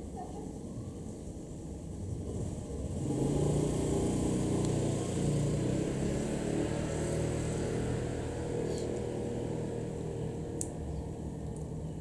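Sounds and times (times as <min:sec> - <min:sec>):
vehicle engine passing: 0:02.2 - 0:11.4.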